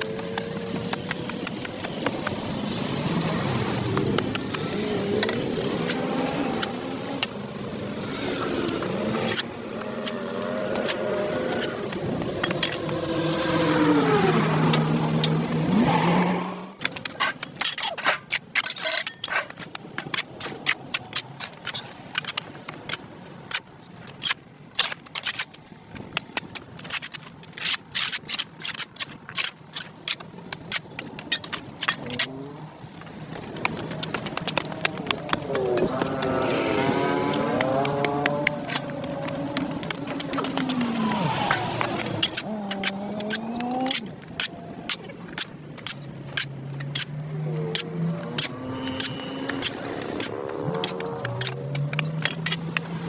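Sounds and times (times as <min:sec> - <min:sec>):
scraping and clicking on pavement: 0:00.0 - 0:53.0
traffic noise: 0:00.0 - 0:53.0
vehicle engine humming: 0:32.0 - 0:53.0.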